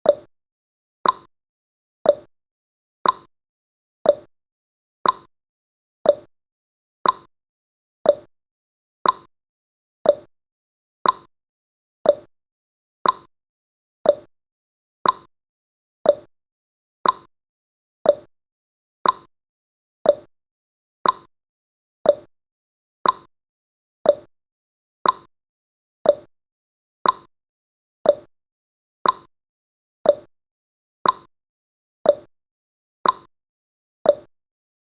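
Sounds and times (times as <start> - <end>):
clock ticking: 1.0 - 1.3, 5.0 - 5.3, 7.0 - 7.3, 8.1 - 8.3, 9.0 - 9.3, 10.1 - 10.3, 11.0 - 11.3, 12.1 - 12.3, 13.0 - 13.3, 14.1 - 14.3, 15.0 - 15.3, 16.1 - 16.3, 17.0 - 17.3, 18.1 - 18.3, 19.0 - 19.3, 20.1 - 20.3, 21.0 - 21.3, 22.1 - 22.3, 23.0 - 23.3, 24.1 - 24.3, 25.0 - 25.3, 26.0 - 26.3, 27.0 - 27.3, 28.1 - 28.3, 29.0 - 29.3, 30.1 - 30.3, 31.0 - 31.3, 32.1 - 32.3, 33.0 - 33.3, 34.1 - 34.3.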